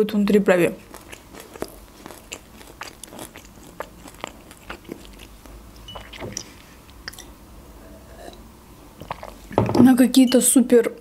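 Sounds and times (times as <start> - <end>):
chewing mouth clicks: 0.8 - 7.3, 9.0 - 9.5.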